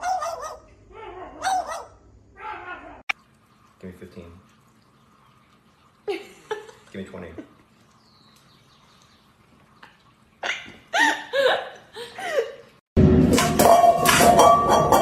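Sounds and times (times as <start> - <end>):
loud music: 13.0 - 15.0.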